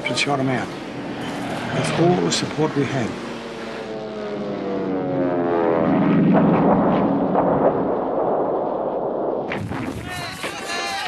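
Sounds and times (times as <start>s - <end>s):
propeller aircraft engine: 0.0s - 9.0s
sharp cracks: 6.3s - 11.0s.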